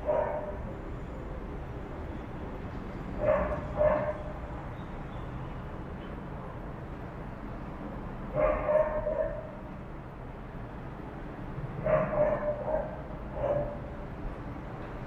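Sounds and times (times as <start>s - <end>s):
dog barking: 0.0s - 0.6s, 3.2s - 4.3s, 8.3s - 9.6s, 11.8s - 13.9s.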